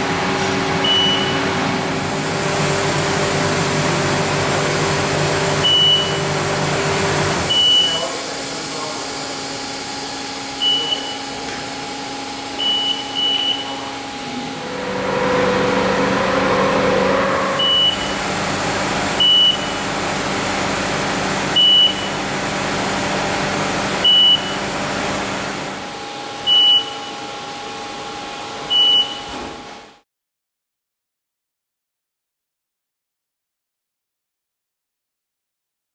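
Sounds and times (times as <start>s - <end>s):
measuring machine motor whine: 9.5s - 20.0s
short high beeps: 17.5s - 18.2s.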